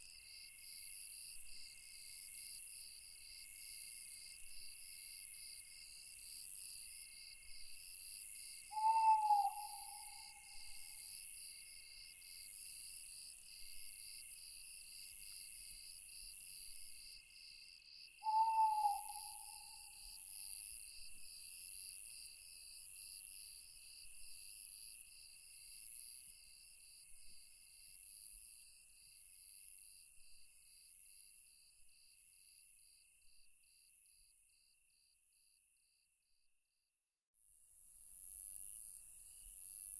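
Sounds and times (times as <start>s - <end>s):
night insects chirping: 7.1s - 12.1s, 18.2s - 20.2s
owl hoot: 8.7s - 10.7s, 18.2s - 20.0s.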